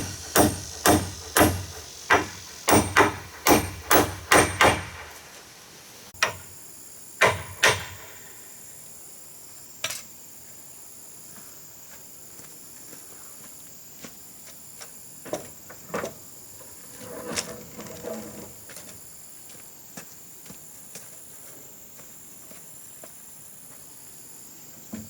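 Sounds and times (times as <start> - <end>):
high insect drone: 0.0 - 25.0.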